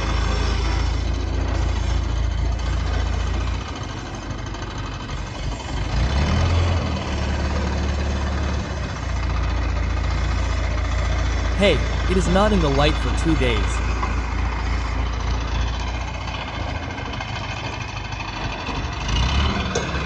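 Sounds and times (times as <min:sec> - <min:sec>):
diesel engine idling: 0:07.4 - 0:19.0.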